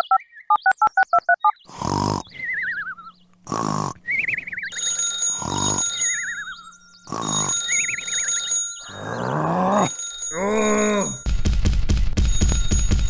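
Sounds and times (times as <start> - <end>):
cartoon beeps: 0.0 - 1.6
cartoon grunting bursts: 1.7 - 2.7, 3.4 - 4.2, 5.4 - 6.2, 7.1 - 7.8, 8.8 - 11.2.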